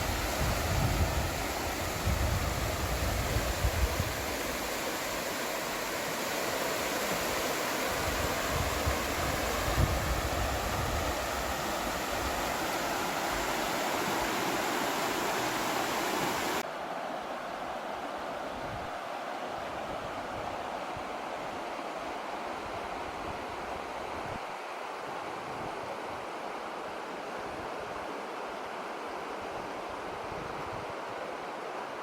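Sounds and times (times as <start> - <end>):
wind buffeting microphone: 0.0 - 4.3, 7.9 - 12.5
mountain stream rushing: 0.0 - 32.0.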